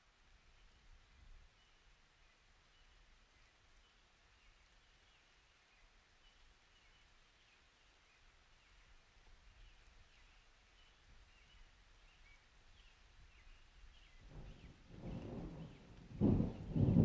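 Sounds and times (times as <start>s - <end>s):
faint bird chirps: 1.5s - 16.9s
low rumble of thunder: 14.0s - 17.0s.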